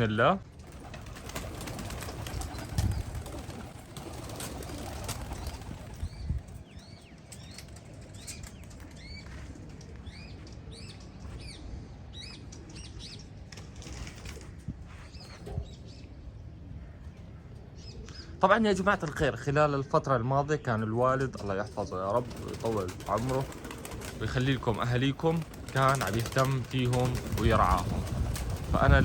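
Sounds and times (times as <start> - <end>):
small birds chirping: 0.0 - 29.0
pigeons flapping wings: 0.5 - 6.6, 13.5 - 14.6, 21.7 - 29.0.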